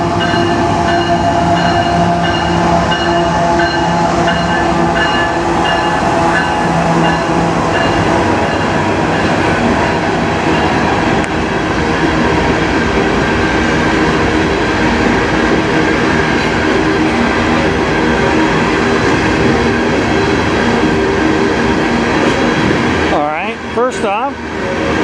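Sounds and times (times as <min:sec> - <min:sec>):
diesel locomotive engine: 0:00.0 - 0:25.0
train wheels rumbling on rails: 0:00.0 - 0:25.0.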